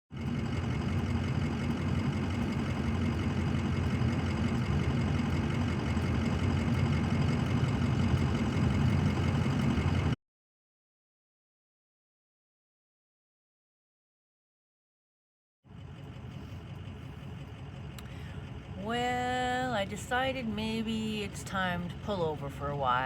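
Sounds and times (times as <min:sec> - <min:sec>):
vehicle engine and road noise: 0:00.1 - 0:10.2, 0:15.7 - 0:23.0.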